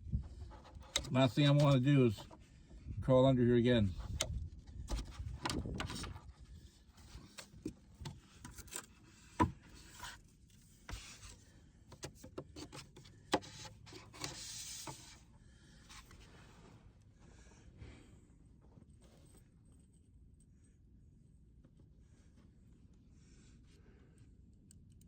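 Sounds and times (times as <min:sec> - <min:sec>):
pipe rubbing and scraping: 0:12.6 - 0:15.2.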